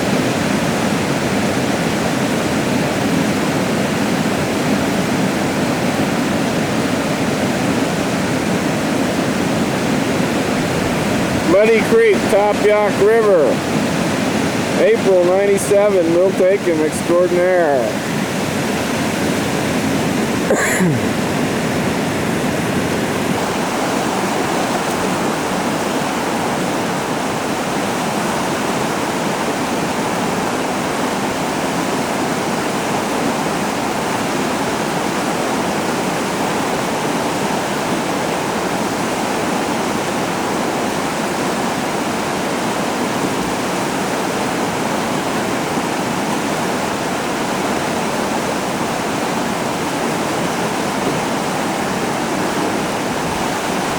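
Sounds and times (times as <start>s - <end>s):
whitewater rushing: 0.0s - 53.9s.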